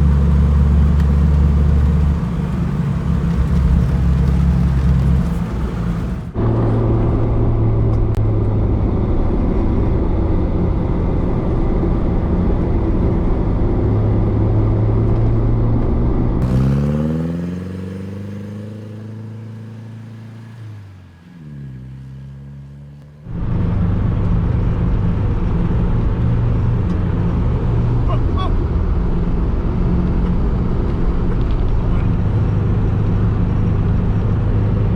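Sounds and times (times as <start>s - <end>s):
diesel engine running: 0.0s - 6.7s, 16.4s - 22.2s.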